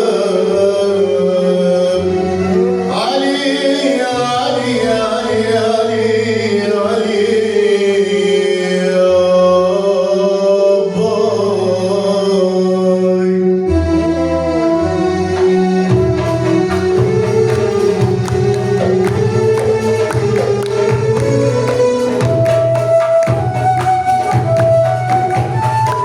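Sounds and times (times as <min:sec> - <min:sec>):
sustained instrumental accompaniment: 0:13.2 - 0:26.0.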